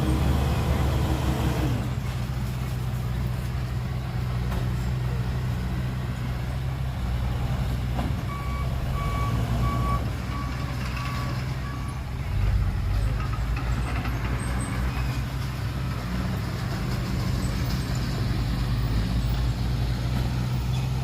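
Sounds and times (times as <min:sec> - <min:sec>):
diesel truck engine running: 0:00.0 - 0:21.0
reversing alarm beeping: 0:08.3 - 0:12.0.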